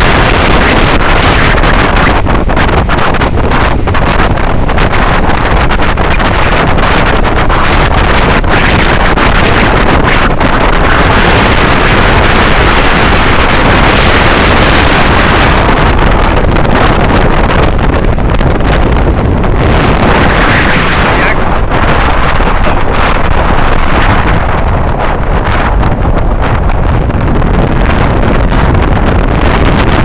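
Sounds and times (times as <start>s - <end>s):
boat running at sea: 0.0s - 30.0s
wind buffeting microphone: 0.0s - 30.0s.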